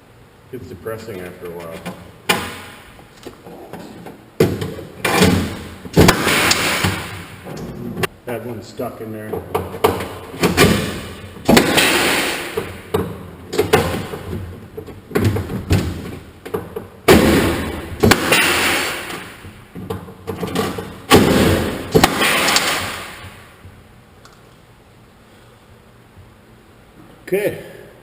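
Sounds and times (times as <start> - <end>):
metal parts knocking and clanking: 18.3 - 22.7.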